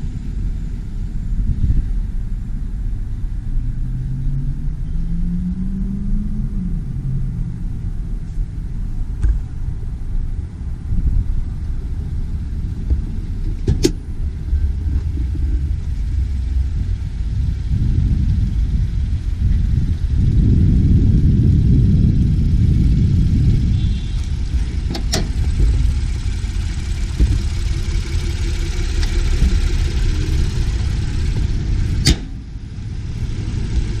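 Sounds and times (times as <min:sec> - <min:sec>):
vehicle engine rumbling: 0:00.0 - 0:34.0.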